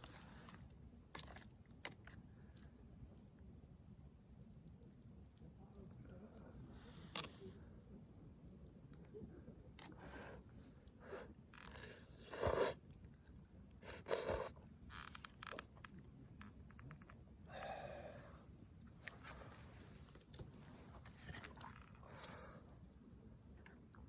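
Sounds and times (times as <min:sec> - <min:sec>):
small handling noises: 0:00.0 - 0:24.0
soft chewing: 0:00.0 - 0:24.0.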